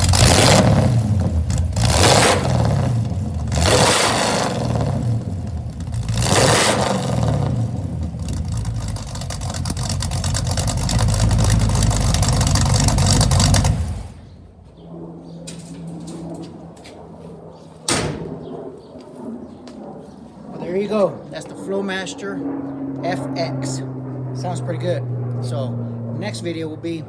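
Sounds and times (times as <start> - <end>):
car engine revving: 0.0 - 14.6
sharp knock: 17.9 - 18.5.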